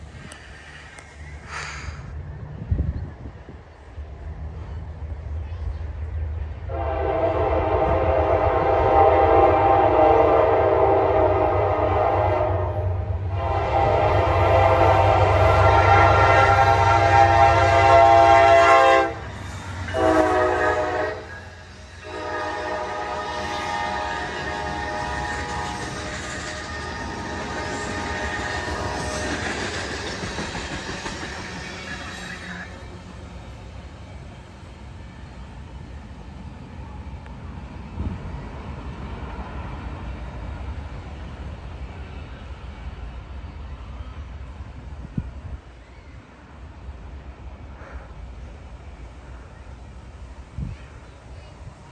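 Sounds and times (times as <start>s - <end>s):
freight train rumbling by: 0.0s - 51.9s
locomotive air horn blasts: 6.7s - 29.2s.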